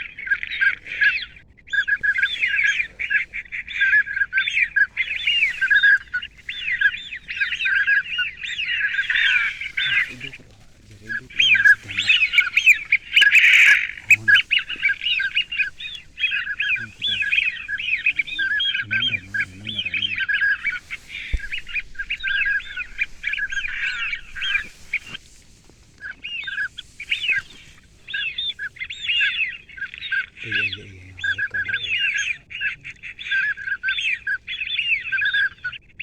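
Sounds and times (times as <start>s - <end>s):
ducks calling: 0.0s - 36.0s.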